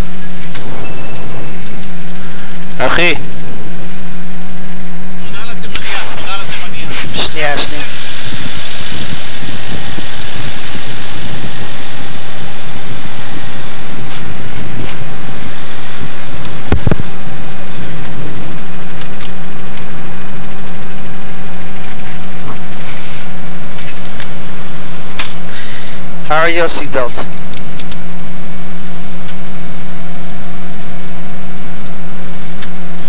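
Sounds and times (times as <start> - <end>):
airplane piston engine idling: 7.0 - 18.8.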